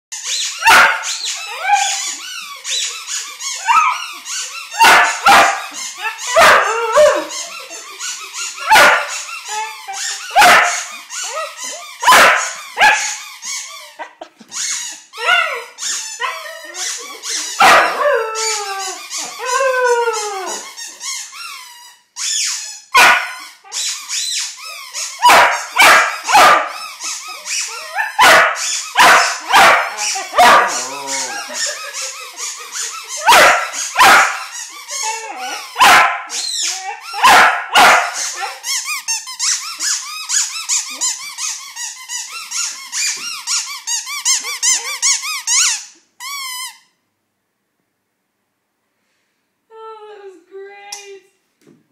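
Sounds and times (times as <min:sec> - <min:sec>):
squeaky toy ball squeaking: 0:00.1 - 0:47.0
puppy howling and barking: 0:00.6 - 0:02.2, 0:04.7 - 0:07.3, 0:17.6 - 0:20.6, 0:27.7 - 0:31.6, 0:33.2 - 0:34.5, 0:35.1 - 0:38.6.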